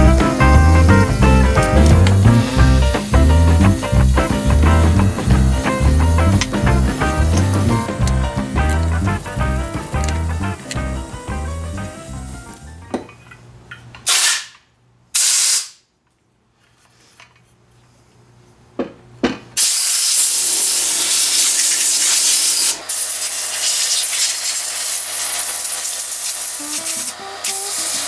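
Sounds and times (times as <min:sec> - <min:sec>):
pressurized spray hissing: 0:00.0 - 0:12.6, 0:19.6 - 0:28.0.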